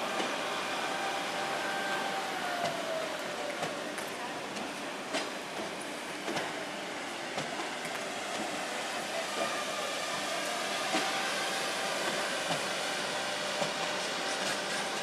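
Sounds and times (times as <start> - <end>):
train wheels hissing on rail: 0.0 - 15.0
wheels clicking over track: 1.9 - 6.7.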